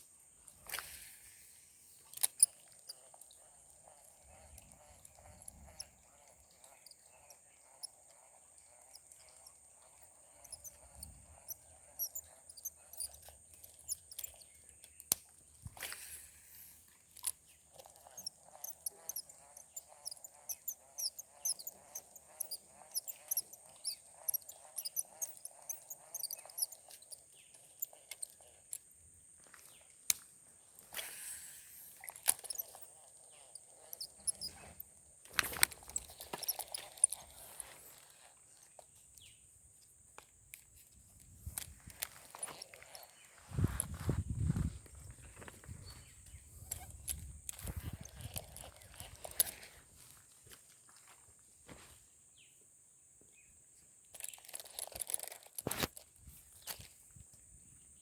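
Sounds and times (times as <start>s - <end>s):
insects droning: 0.0s - 58.0s
sharp clicks: 2.1s - 16.2s, 17.1s - 28.9s, 32.0s - 37.8s.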